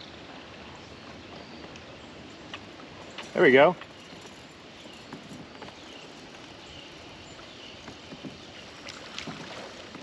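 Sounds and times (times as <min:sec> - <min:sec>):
water against kayak hull: 0:00.0 - 0:10.0
water splashes: 0:07.7 - 0:10.0.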